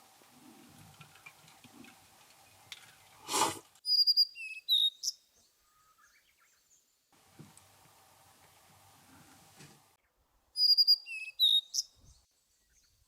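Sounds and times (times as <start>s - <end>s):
bird whistling calls: 3.8s - 6.6s, 10.6s - 12.2s.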